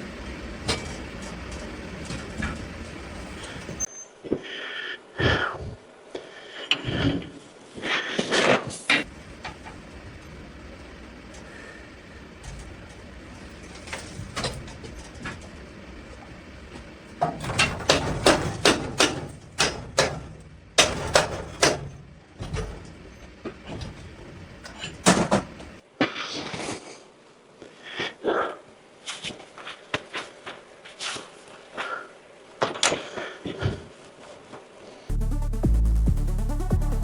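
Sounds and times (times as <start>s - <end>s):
sharp knocks and clatter: 0.0s - 3.9s, 9.0s - 25.8s
steady low hum: 0.0s - 3.9s, 9.0s - 25.8s.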